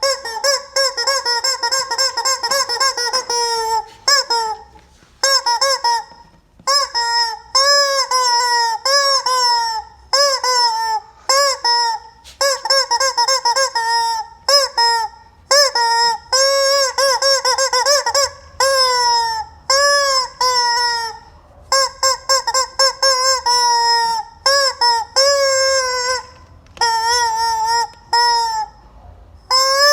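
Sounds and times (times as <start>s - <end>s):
rubber chicken toy squawking: 0.0s - 29.9s.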